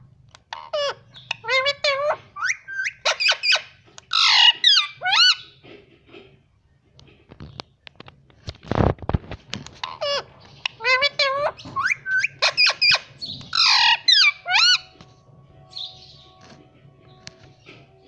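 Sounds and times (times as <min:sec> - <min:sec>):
parakeet chattering: 0:00.6 - 0:05.5, 0:09.8 - 0:14.9
parakeet harsh squawk: 0:00.6 - 0:05.5, 0:09.8 - 0:14.9.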